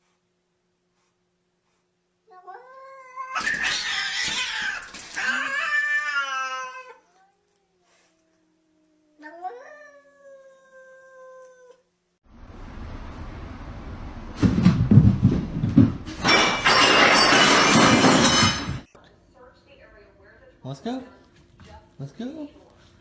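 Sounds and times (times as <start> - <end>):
cat yowling: 2.5 - 8.0, 9.0 - 11.8.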